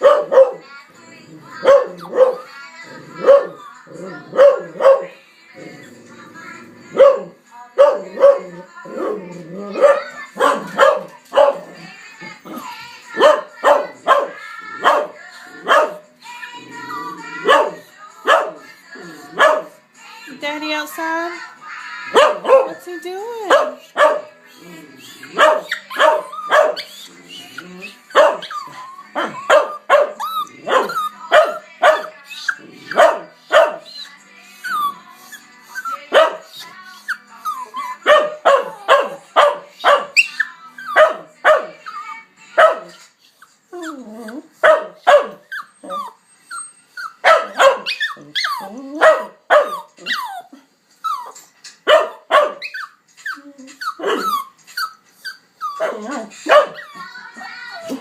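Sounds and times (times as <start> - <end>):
dog whining: 15.6 - 17.8, 23.9 - 39.2, 39.8 - 41.2, 41.8 - 58.0.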